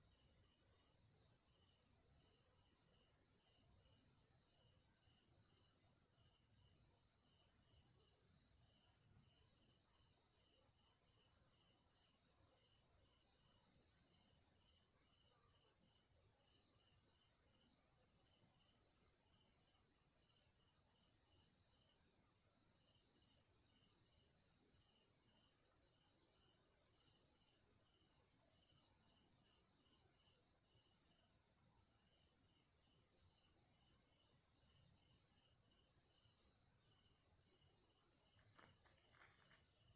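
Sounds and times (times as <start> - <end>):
insect chirring: 25.0 - 39.9.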